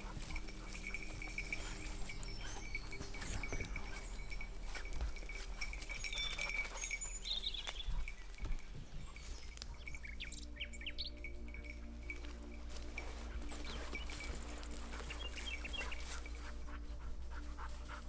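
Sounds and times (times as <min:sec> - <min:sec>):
small bird chirping: 0:05.2 - 0:12.2.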